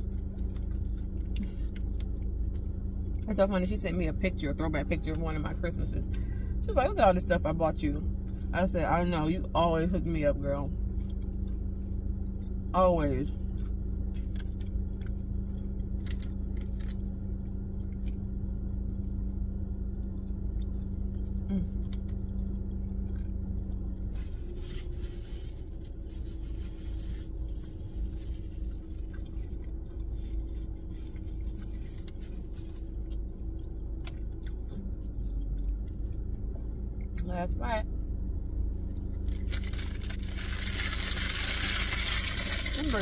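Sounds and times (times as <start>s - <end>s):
person chewing food: 0.0s - 3.2s, 10.9s - 12.6s, 13.4s - 24.6s, 28.8s - 37.1s
low hum inside a car: 0.0s - 43.0s
paper bag rustling: 24.1s - 29.3s, 39.2s - 43.0s.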